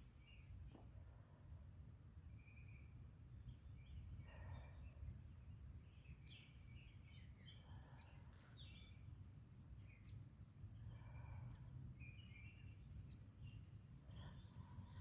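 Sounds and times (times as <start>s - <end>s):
small birds chirping and trilling: 2.4s - 9.1s, 9.8s - 15.0s.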